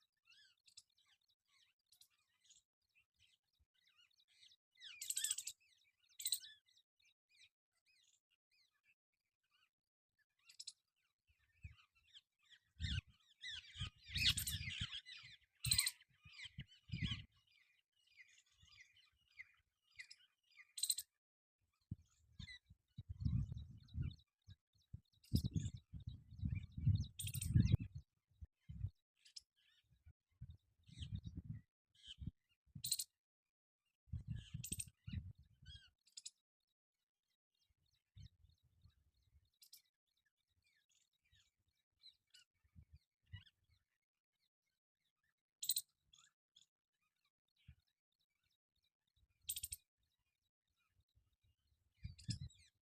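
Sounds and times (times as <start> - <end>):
birds chirping: 0.2 - 9.7, 10.4 - 33.2, 34.1 - 36.4, 49.4 - 49.8, 52.0 - 52.8.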